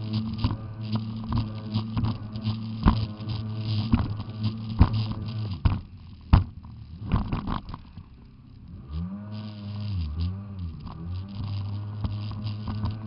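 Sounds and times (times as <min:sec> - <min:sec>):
jet ski engine running: 0:00.0 - 0:13.0
sharp thumps: 0:00.1 - 0:08.2.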